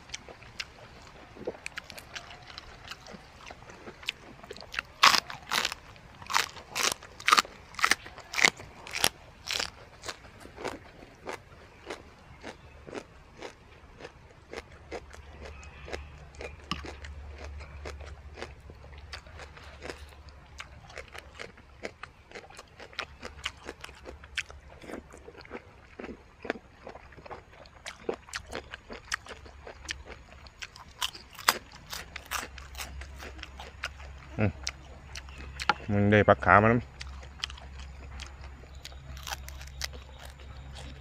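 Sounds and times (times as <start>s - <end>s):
crunchy chewing: 0.0s - 41.0s.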